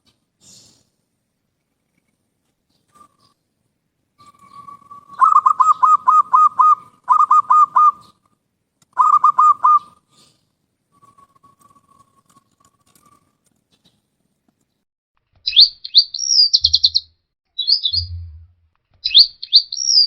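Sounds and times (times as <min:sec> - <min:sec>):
bird calling with rasping notes: 0:04.2 - 0:08.3, 0:08.9 - 0:10.3, 0:15.4 - 0:18.4, 0:19.0 - 0:20.0.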